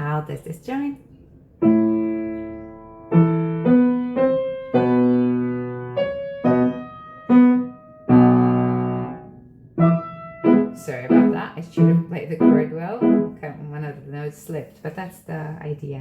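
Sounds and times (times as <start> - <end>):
slow piano notes: 1.1 - 13.7.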